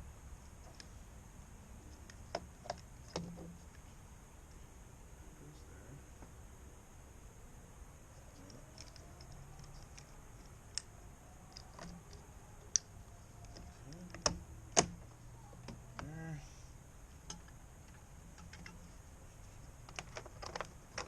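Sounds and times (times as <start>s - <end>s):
clicks and taps of small parts: 8.4s - 10.9s, 17.2s - 18.9s, 19.8s - 21.0s.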